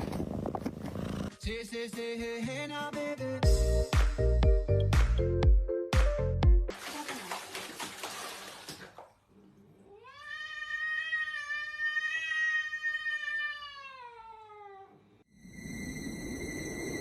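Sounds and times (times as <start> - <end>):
cat yowling: 9.9 - 15.0.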